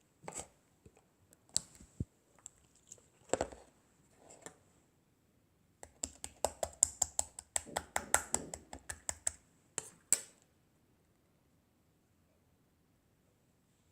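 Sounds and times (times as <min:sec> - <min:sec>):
rapid sharp taps: 0:05.8 - 0:09.4.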